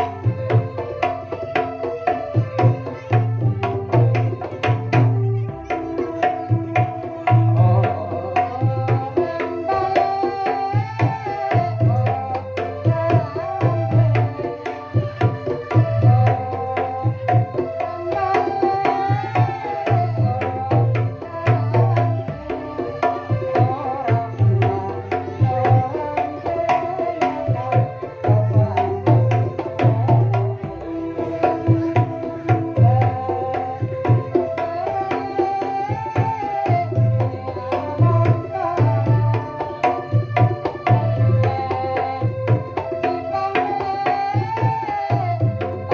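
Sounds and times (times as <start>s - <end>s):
hand drumming: 0.0s - 45.9s
wavering melody line: 11.6s - 45.9s.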